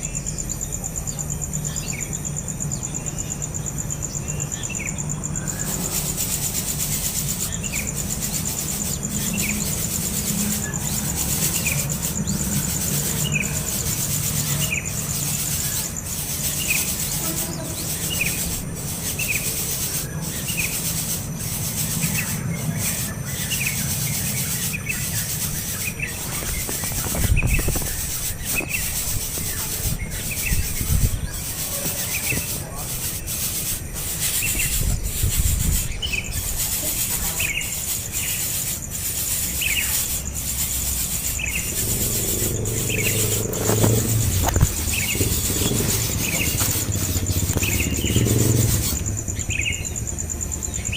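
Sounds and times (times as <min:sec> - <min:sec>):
young bird chirping: 0:24.6 - 0:32.6, 0:41.2 - 0:50.0
low thumps: 0:41.6 - 0:49.3.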